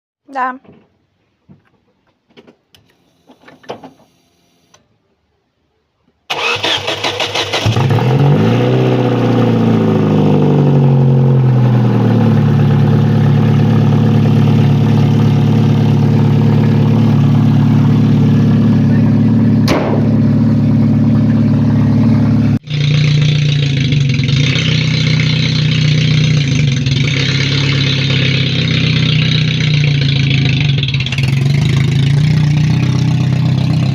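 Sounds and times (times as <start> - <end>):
car engine starter cranking: 6.3 - 8.2
car engine revving and idling: 6.4 - 33.9.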